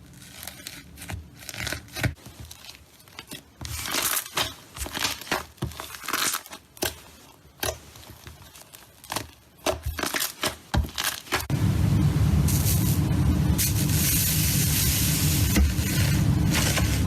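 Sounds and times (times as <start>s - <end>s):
rushing noise with low hum: 11.5s - 17.0s.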